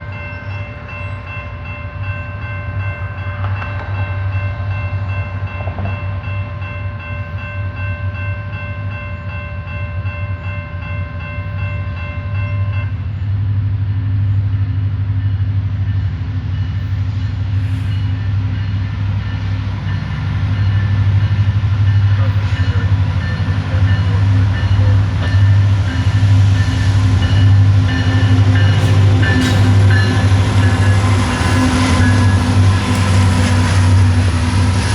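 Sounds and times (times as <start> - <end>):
locomotive engine rumble: 14.4 - 34.9
train horn: 28.7 - 34.9.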